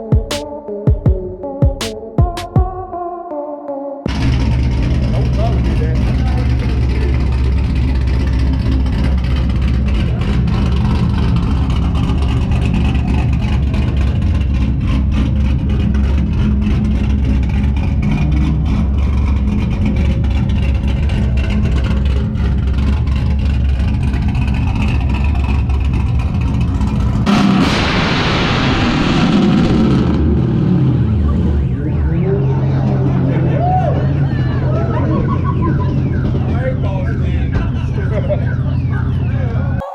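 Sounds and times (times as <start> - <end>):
car engines rumbling: 4.1 - 39.9
sudden loud burst of noise: 27.2 - 31.4.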